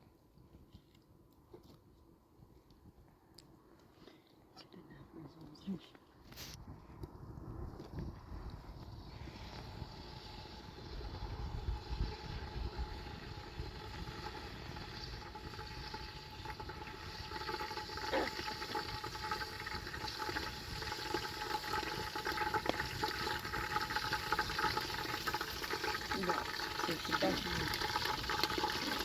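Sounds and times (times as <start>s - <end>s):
water running: 12.8s - 29.0s.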